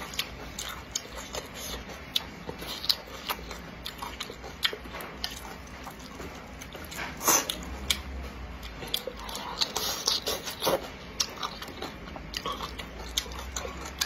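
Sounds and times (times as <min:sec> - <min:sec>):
chewing noodles: 0:00.0 - 0:14.0.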